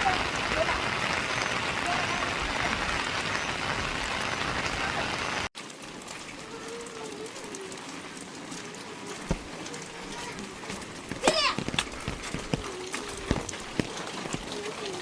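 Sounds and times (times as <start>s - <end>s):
rain hissing: 0.0s - 15.0s
knock: 9.3s - 9.5s.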